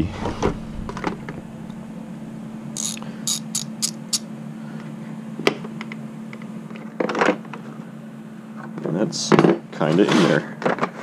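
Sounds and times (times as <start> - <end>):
steady low hum: 0.0 - 10.7
hand tool clicking rasps: 2.8 - 4.2.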